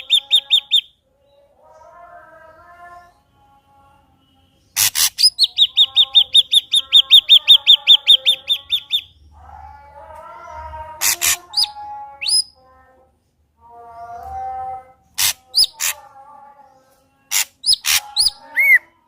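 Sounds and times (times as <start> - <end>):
bird singing: 0.0 - 3.6, 4.6 - 12.6, 13.8 - 19.0.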